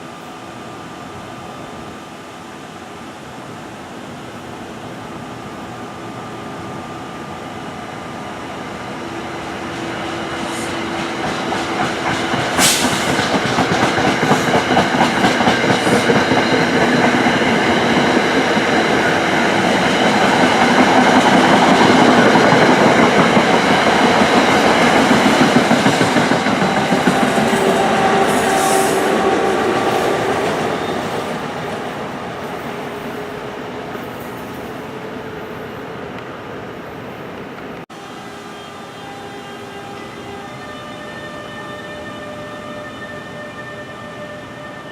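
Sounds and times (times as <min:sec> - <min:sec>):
train wheels clacking on rails: 0:09.0 - 0:33.2.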